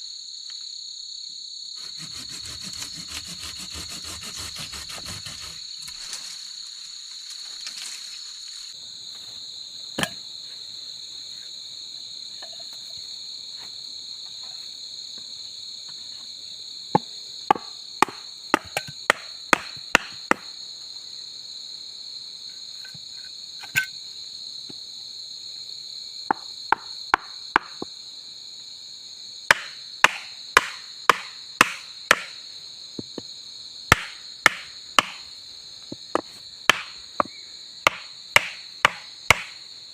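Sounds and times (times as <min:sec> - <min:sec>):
crickets and night insects chirping: 0:00.0 - 0:39.9
chopping strikes on wood: 0:10.0 - 0:10.2, 0:17.0 - 0:20.5, 0:26.3 - 0:27.9, 0:29.5 - 0:32.4, 0:33.9 - 0:35.2, 0:35.9 - 0:39.6.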